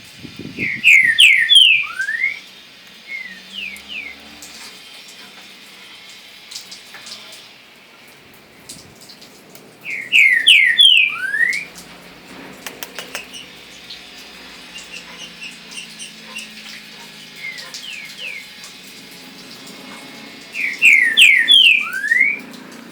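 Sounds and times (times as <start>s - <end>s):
songbird whistling phrase: 0.5s - 4.3s, 9.8s - 11.7s, 14.6s - 18.6s, 20.5s - 22.5s
soft bird chirps: 9.9s - 11.7s, 12.6s - 18.6s.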